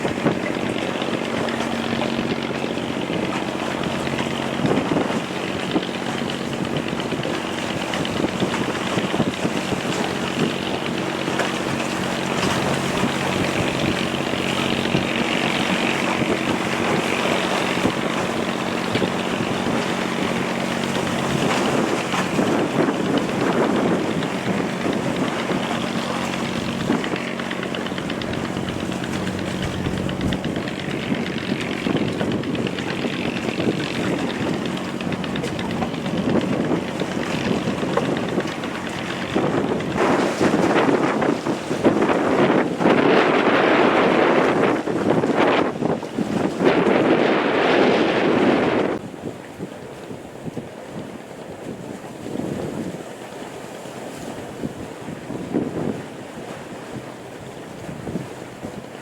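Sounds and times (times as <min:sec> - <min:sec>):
boat engine hum: 0:00.0 - 0:59.0
water noise: 0:00.0 - 0:59.0
wind: 0:00.0 - 0:59.0.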